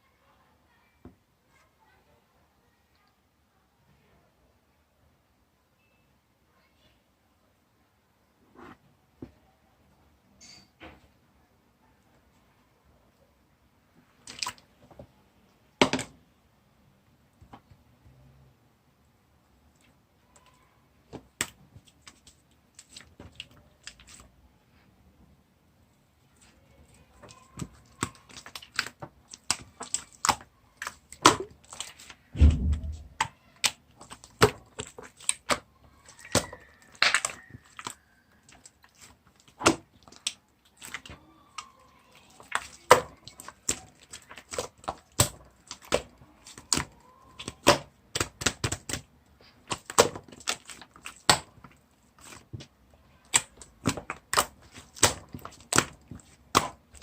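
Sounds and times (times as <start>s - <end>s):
low thump: 32.4s - 33.1s.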